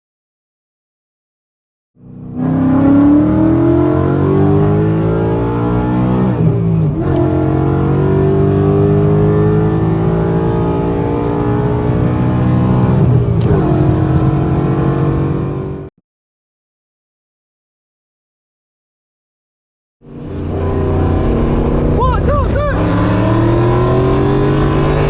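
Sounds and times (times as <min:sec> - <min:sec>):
car engine accelerating hard: 0:02.1 - 0:15.9, 0:20.1 - 0:25.0.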